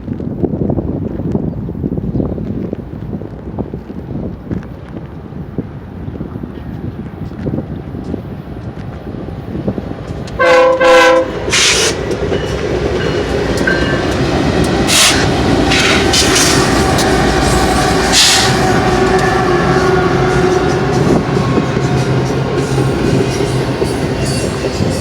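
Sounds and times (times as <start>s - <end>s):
rail noise: 0.0s - 25.0s
locomotive engine rumble: 5.1s - 25.0s
locomotive horn blasts: 10.4s - 12.0s, 14.8s - 25.0s.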